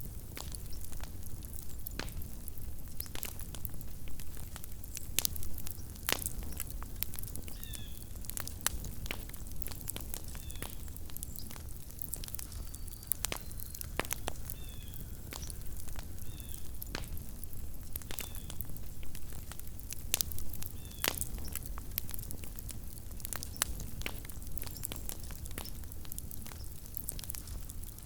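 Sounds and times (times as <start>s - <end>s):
campfire crackling and popping: 0.0s - 28.0s
faint high chirps: 12.5s - 15.6s.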